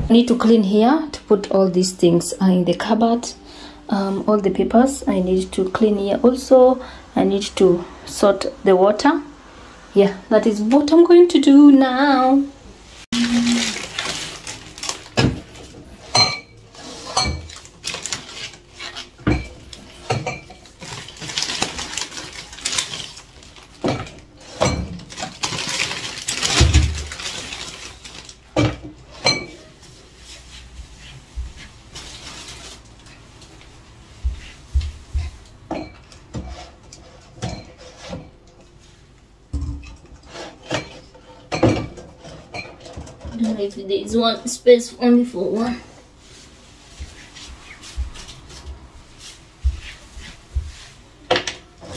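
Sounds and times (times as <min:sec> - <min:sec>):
rustling: 0:13.0 - 0:16.1, 0:16.7 - 0:23.8, 0:25.1 - 0:28.4, 0:29.7 - 0:35.5, 0:46.0 - 0:51.2
dishes clinking and clattering: 0:15.1 - 0:18.2, 0:19.2 - 0:21.5, 0:23.8 - 0:27.6, 0:28.5 - 0:29.7, 0:35.2 - 0:38.5, 0:39.6 - 0:43.6.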